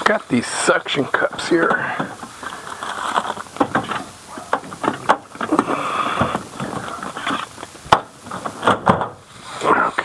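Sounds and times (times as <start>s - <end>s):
tool handling clicks and knocks: 1.2s - 9.2s.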